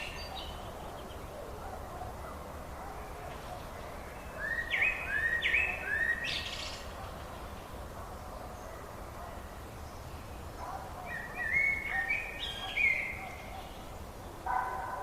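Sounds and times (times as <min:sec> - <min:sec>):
bird singing upswept notes: 0:00.0 - 0:01.3, 0:03.0 - 0:07.8, 0:09.8 - 0:13.9
low background hiss: 0:00.0 - 0:14.8.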